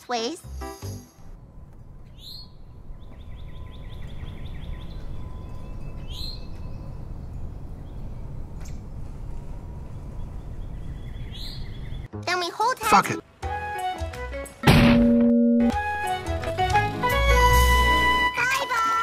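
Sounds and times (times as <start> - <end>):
steady low rumble: 1.2 - 12.1
birds chirping: 1.8 - 12.1
downward-sweeping bird call: 2.1 - 8.8.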